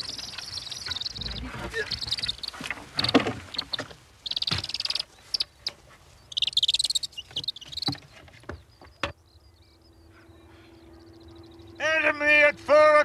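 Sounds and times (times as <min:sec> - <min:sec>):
wings flapping: 0:00.0 - 0:05.9.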